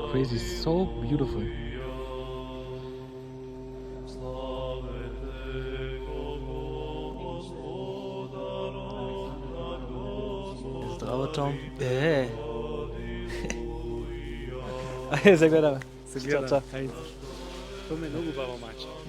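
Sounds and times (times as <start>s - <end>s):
slow vocal chant: 0.0s - 19.0s
man speaking: 10.8s - 12.4s, 14.7s - 17.1s, 17.9s - 19.0s.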